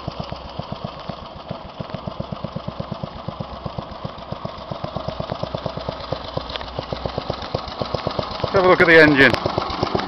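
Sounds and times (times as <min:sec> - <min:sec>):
lawn tractor engine idling: 0:00.0 - 0:10.0.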